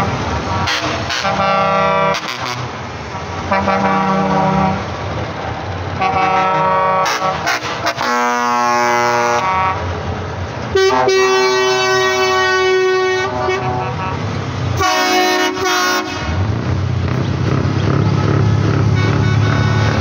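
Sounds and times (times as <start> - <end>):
truck engines rumbling: 0.0 - 20.0
truck horn blasts: 0.5 - 2.8, 3.4 - 4.9, 6.0 - 9.9, 10.7 - 14.2, 14.8 - 16.5, 18.1 - 20.0.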